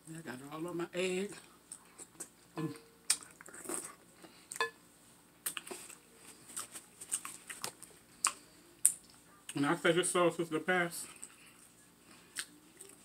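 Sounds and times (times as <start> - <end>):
wet chewing and lip smacks: 5.4 - 9.6, 11.1 - 13.0.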